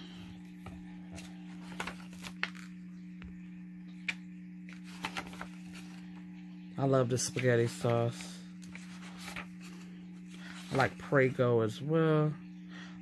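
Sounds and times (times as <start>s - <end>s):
steady low hum: 0.0s - 13.0s
book pages turning: 0.5s - 2.9s, 4.0s - 6.4s, 7.2s - 11.3s.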